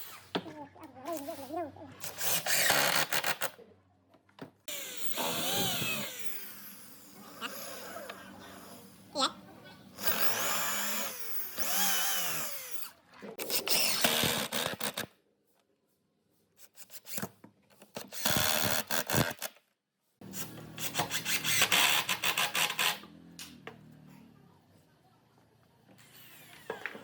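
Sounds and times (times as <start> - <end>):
power drill motor whirring: 2.0 - 3.4, 4.7 - 8.7, 10.0 - 12.9, 18.1 - 19.5, 26.0 - 27.0.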